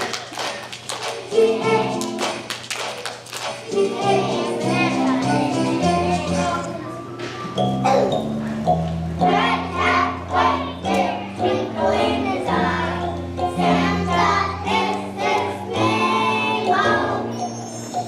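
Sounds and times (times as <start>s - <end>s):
musical accompaniment: 0.0s - 18.0s
children's choir singing: 1.1s - 2.5s, 3.5s - 6.8s, 9.2s - 18.0s.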